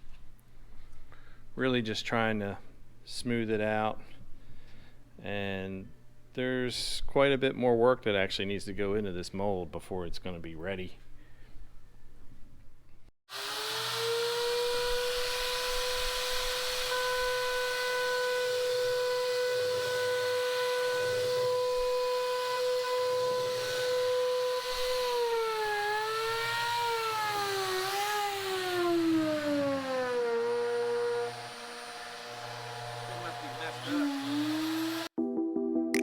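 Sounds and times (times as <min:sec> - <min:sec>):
power tool motor whining: 0:13.3 - 0:35.1.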